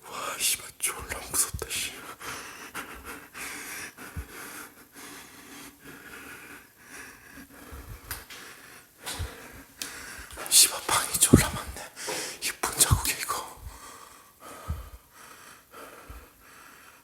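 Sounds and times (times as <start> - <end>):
person breathing heavily: 1.5 - 17.0
soft low thumps: 11.2 - 11.8, 14.7 - 15.0.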